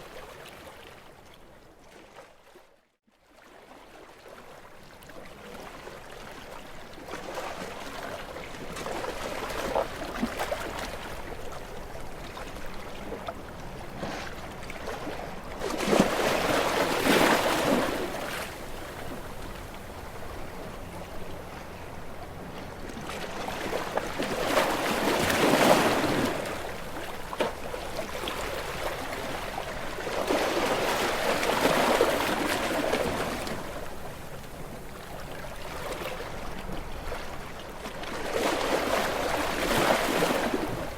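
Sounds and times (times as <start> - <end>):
sea waves washing against rocks: 14.3 - 21.2, 23.1 - 34.1.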